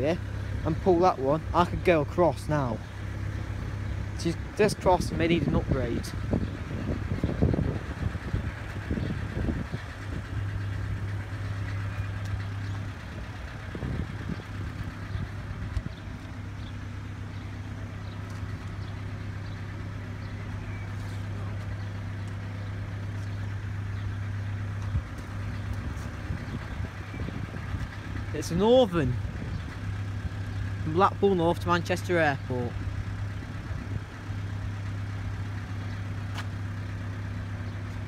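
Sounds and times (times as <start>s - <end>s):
diesel engine running: 0.0s - 38.0s
wind noise: 5.0s - 10.5s, 12.9s - 16.3s, 24.9s - 28.3s.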